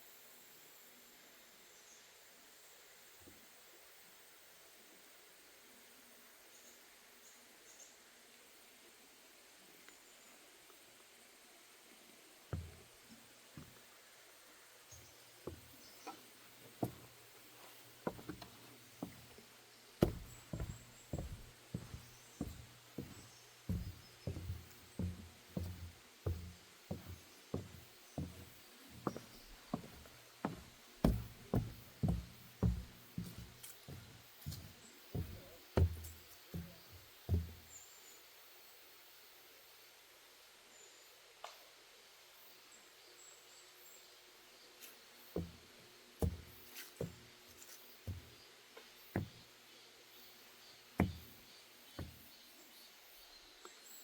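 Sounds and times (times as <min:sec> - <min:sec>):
faint steady hiss: 0:00.0 - 0:54.0
footsteps on wooden boardwalk: 0:12.6 - 0:12.9, 0:14.9 - 0:37.8, 0:45.4 - 0:45.6, 0:46.2 - 0:48.4, 0:49.1 - 0:49.4, 0:51.0 - 0:52.3.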